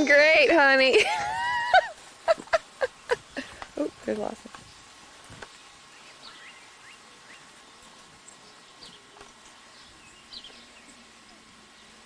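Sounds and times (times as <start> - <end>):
bird chirps: 5.9 - 9.1, 9.7 - 11.2.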